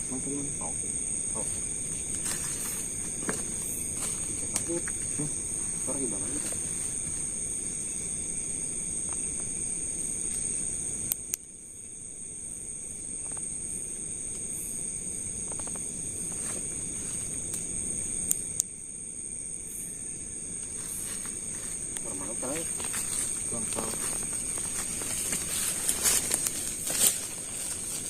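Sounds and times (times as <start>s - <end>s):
insect chorus drone: 0.0s - 28.0s.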